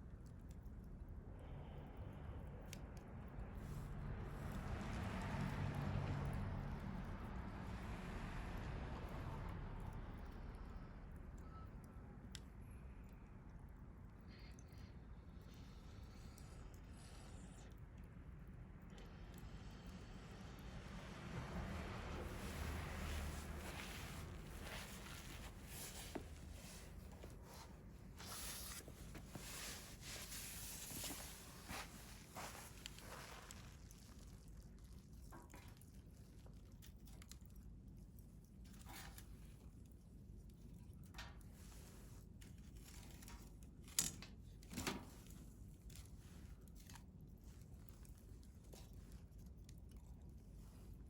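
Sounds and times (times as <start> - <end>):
wood fire crackling: 20.8 - 37.5.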